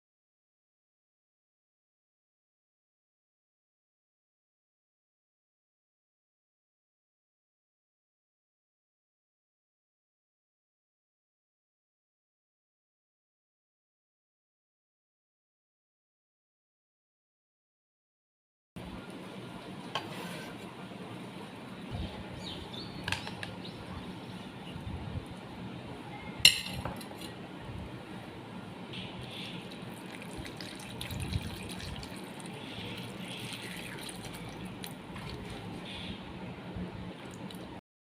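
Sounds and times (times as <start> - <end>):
water sloshing in a bowl: 29.2 - 35.9.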